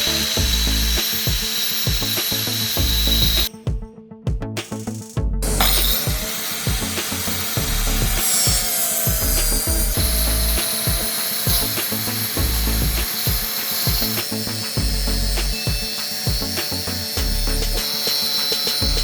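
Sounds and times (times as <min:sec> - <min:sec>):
background music with beat: 0:00.0 - 0:19.0
tool rasping on wood: 0:05.4 - 0:19.0.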